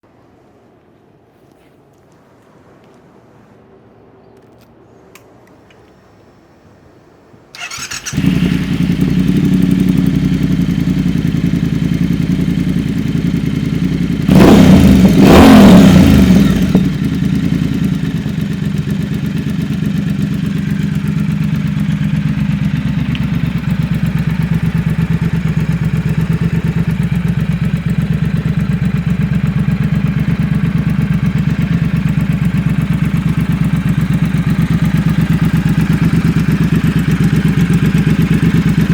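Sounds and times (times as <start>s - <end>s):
motorcycle engine starting and idling: 7.5s - 38.9s
engine revving: 7.6s - 20.4s.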